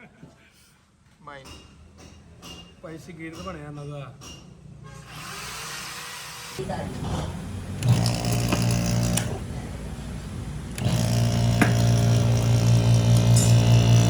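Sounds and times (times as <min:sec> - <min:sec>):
fridge compressor humming: 0:06.6 - 0:14.0.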